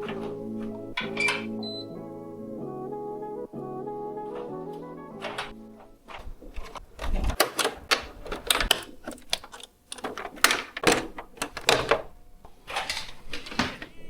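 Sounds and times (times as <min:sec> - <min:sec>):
sharp clicks and knocks: 0:05.2 - 0:12.1.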